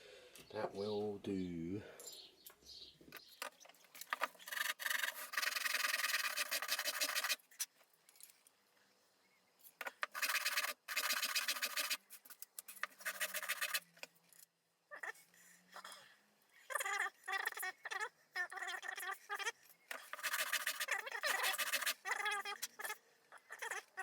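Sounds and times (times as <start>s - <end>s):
hand tool rasping: 4.5s - 7.4s, 10.1s - 12.0s, 12.8s - 13.8s, 20.0s - 22.0s.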